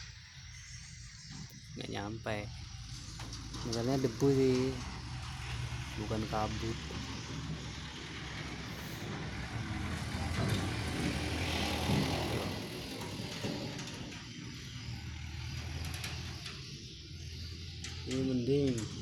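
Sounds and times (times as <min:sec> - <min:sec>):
vehicle engine hum: 0:00.0 - 0:19.0
tyre noise on dirt road: 0:02.3 - 0:17.4.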